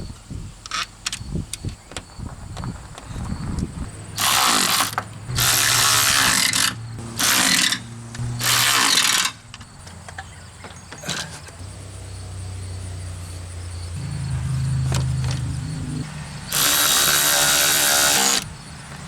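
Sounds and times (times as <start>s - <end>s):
cordless power driver whirring: 4.2s - 9.7s, 14.9s - 18.6s
tool and parts clicking: 4.2s - 11.6s.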